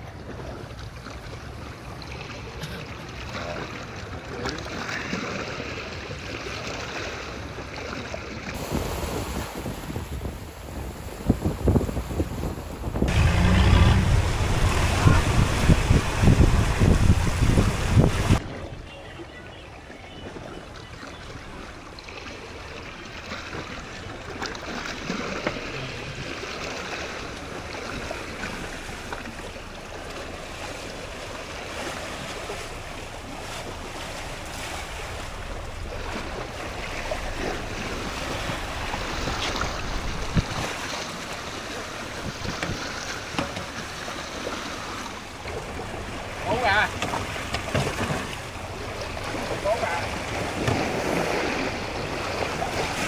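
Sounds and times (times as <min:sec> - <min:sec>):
sea waves washing: 0:08.5 - 0:18.4, 0:23.4 - 0:53.0
wind buffeting microphone: 0:08.6 - 0:18.8, 0:27.4 - 0:53.0.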